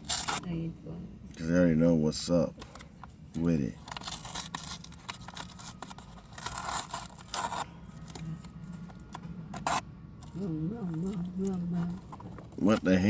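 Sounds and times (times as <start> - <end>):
plastic food packaging handled: 2.6 - 10.4
packaging crinkling or tearing: 3.8 - 10.4.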